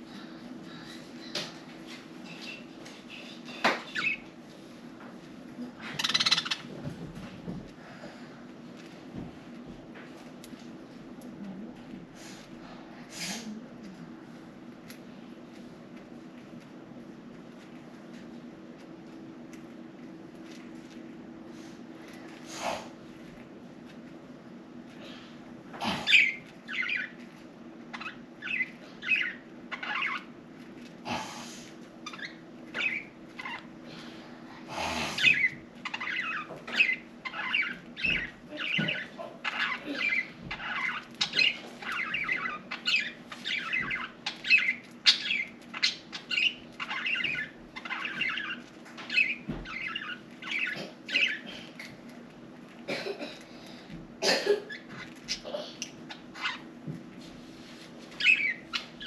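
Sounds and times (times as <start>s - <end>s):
budgerigars chirping: 3.5s - 4.3s, 6.0s - 6.7s, 26.0s - 27.2s, 27.9s - 30.3s, 32.0s - 33.7s, 35.2s - 51.5s, 56.1s - 56.7s, 58.2s - 59.0s.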